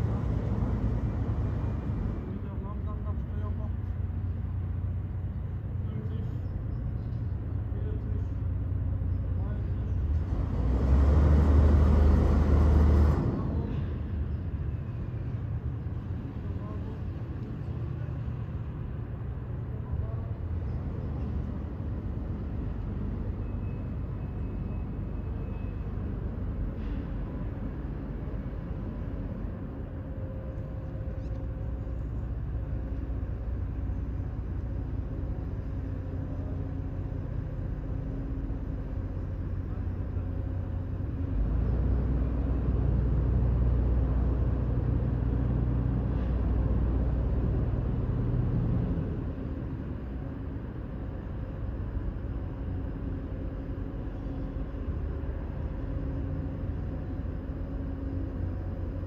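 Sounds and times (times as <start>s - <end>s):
heavy engine humming: 0.0s - 59.0s.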